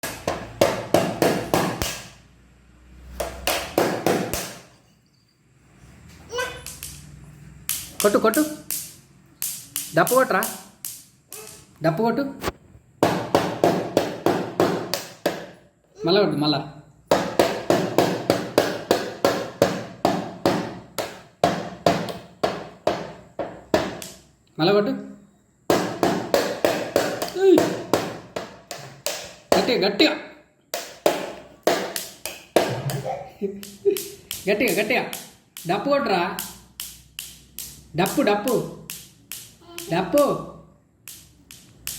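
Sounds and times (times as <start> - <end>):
baby beating a drum by hand: 0.0 - 2.1, 3.2 - 4.6, 13.0 - 15.6, 17.1 - 24.1, 25.7 - 29.8, 30.7 - 35.8.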